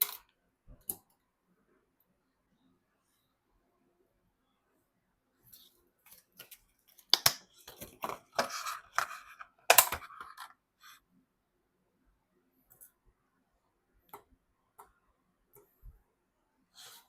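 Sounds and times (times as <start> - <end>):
handling computer parts: 6.0 - 10.6.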